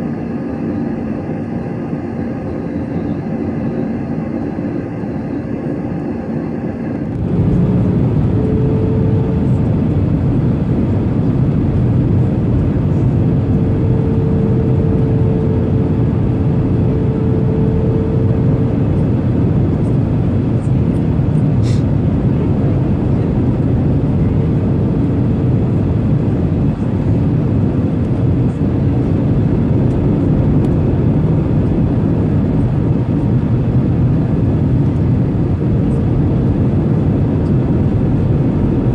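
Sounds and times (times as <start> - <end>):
jet airliner cabin rumble: 0.0 - 38.9
faint steady hum: 7.0 - 21.6.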